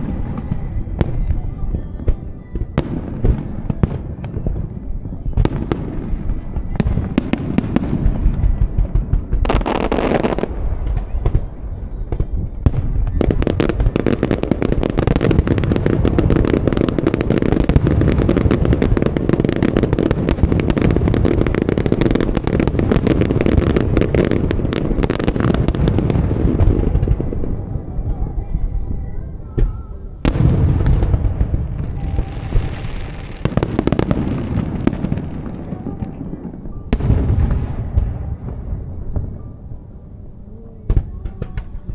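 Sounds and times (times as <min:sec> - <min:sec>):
firework shells booming and crackling: 0:00.0 - 0:41.9.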